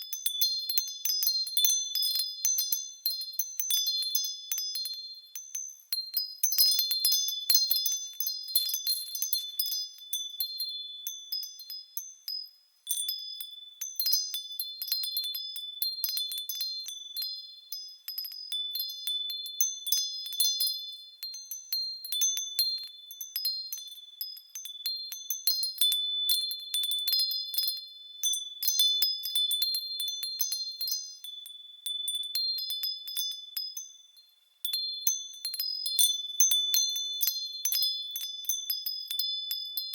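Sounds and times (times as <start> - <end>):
wind chimes jingling: 34.6 - 39.9.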